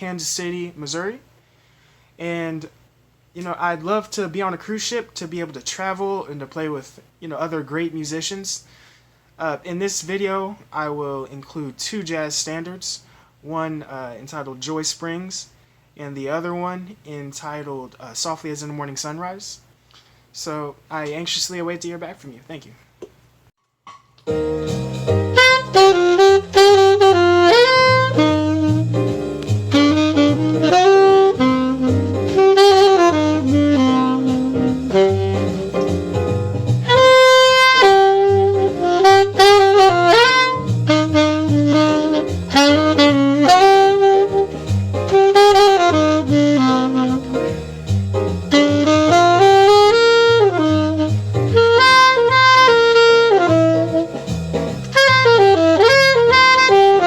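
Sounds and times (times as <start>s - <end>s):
bass notes: 24.3s - 57.0s
saxophone jazz melody: 24.3s - 57.0s.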